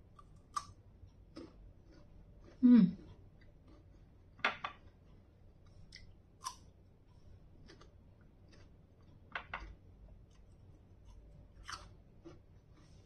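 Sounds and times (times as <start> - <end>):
soft chewing: 0.0 - 13.0
crunching of raw fruit: 10.3 - 13.0.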